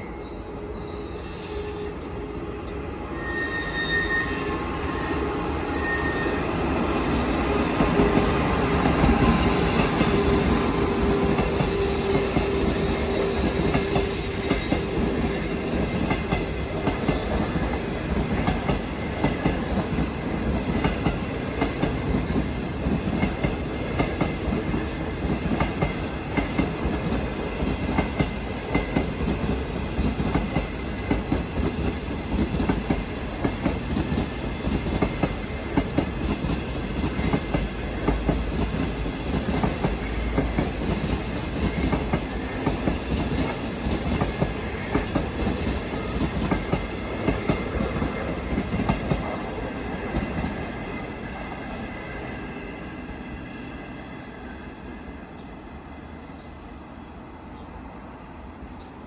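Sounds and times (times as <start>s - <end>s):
train rumble: 4.4s - 56.2s
train wheels clattering: 7.4s - 52.8s.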